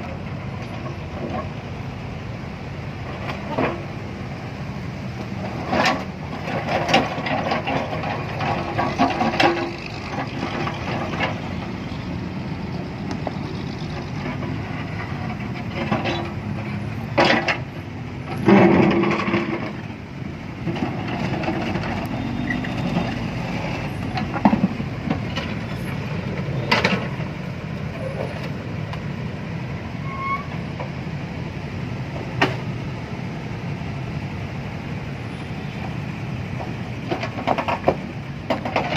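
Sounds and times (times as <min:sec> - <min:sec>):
engine running: 0:00.0 - 0:29.9
clanks and knocks: 0:24.1 - 0:25.6, 0:36.6 - 0:38.9.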